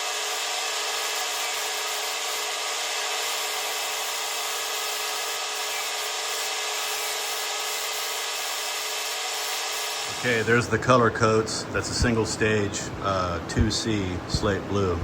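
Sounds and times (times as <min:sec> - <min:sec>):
paint spray gun hissing: 0:00.0 - 0:10.4.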